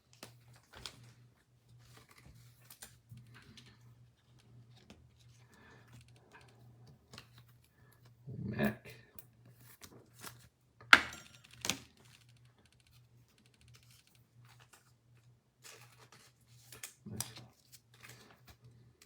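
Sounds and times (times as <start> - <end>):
cards and wrappers rustling: 0.0 - 7.8, 13.8 - 19.0.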